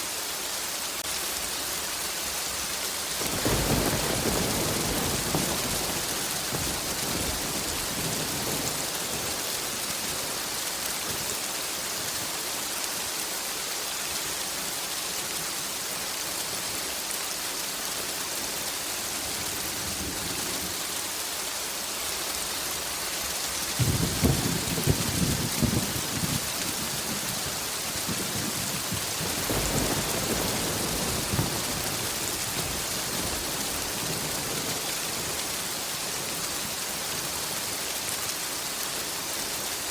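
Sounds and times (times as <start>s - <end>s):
heavy rain hissing: 0.0s - 39.9s
thunder rolling: 3.3s - 10.4s, 23.8s - 36.0s.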